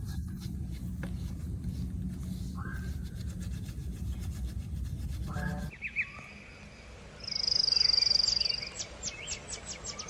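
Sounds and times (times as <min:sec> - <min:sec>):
hand sanding strokes: 0:00.0 - 0:05.7
bird chirps: 0:07.2 - 0:10.0
high trilling bird call: 0:07.2 - 0:10.0.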